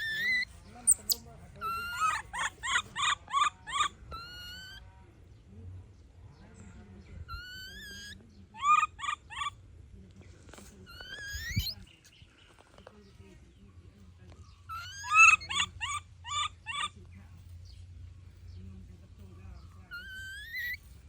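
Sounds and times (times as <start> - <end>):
baby monkey crying: 0.0 - 4.8, 7.3 - 9.5, 10.9 - 11.8, 14.7 - 17.0, 19.9 - 20.8
monkey squeaks: 0.0 - 4.8, 7.3 - 9.6, 10.9 - 11.8, 14.7 - 17.0, 19.9 - 21.0.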